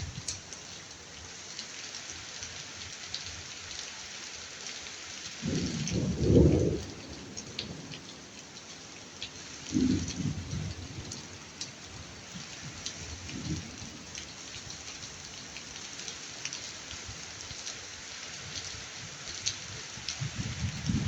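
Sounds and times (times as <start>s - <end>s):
steady rain falling: 0.0s - 21.0s
low rumble of thunder: 5.4s - 8.4s, 9.6s - 11.4s, 13.0s - 14.1s, 20.2s - 21.0s.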